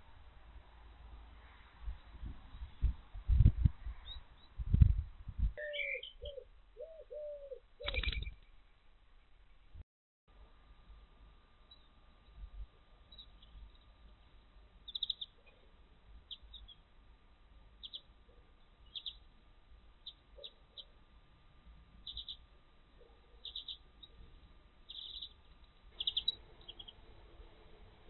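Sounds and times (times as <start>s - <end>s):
birds chirping: 5.6s - 8.5s, 22.0s - 24.2s, 24.9s - 27.1s.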